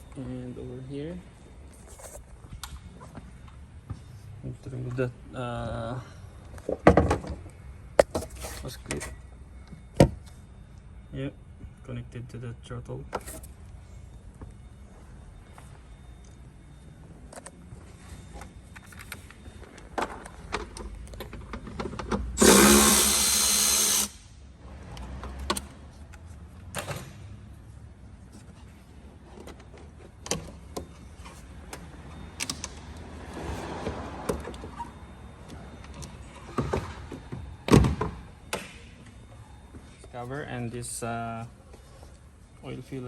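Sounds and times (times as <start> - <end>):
handheld power tool running: 22.4 - 24.2.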